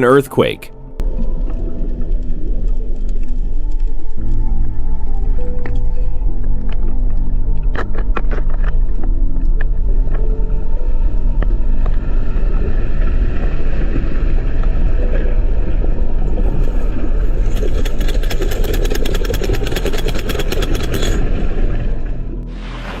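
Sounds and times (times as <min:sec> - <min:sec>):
deep underwater rumbling: 0:00.7 - 0:23.0
fast rattling: 0:17.5 - 0:21.2.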